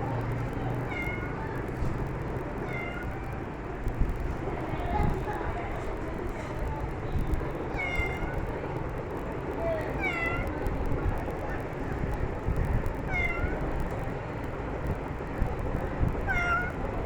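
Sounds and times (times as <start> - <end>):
steady low rumble: 0.0 - 17.0
cat meowing: 7.8 - 8.4, 13.1 - 13.6, 16.2 - 16.8.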